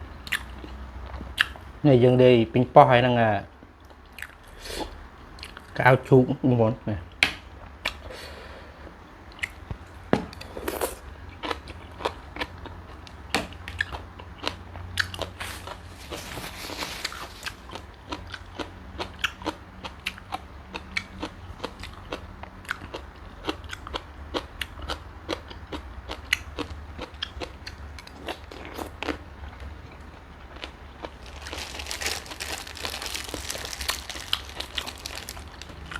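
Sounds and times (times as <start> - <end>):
person chewing crunchy food: 0.2 - 1.6, 10.3 - 35.9.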